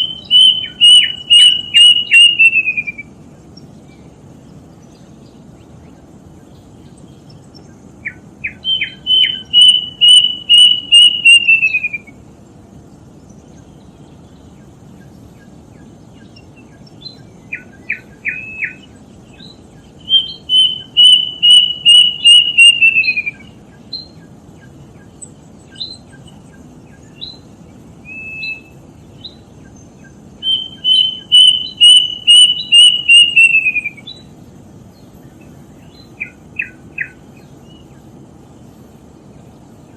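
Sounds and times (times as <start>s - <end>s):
cuckoo whistled song: 0.0s - 3.2s, 8.0s - 12.2s, 16.2s - 24.7s, 25.7s - 27.4s, 28.0s - 29.4s, 30.0s - 34.3s, 35.8s - 37.8s.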